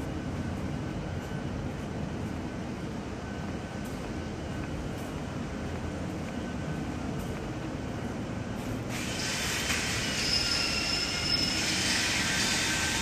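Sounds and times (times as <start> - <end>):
loud hiss with high squealing tones: 8.9 - 13.0.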